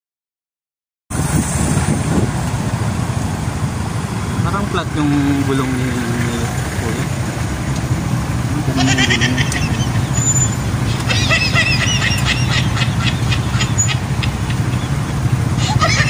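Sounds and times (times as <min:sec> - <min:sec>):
motorcycle engine idling: 0:07.4 - 0:16.0
high warbling squeal: 0:08.9 - 0:15.4.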